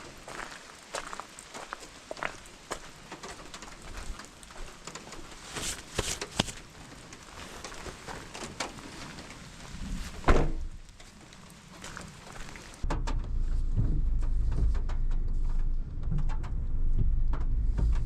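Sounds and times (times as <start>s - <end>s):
camping gear clicking and knocking: 1.8s - 12.4s.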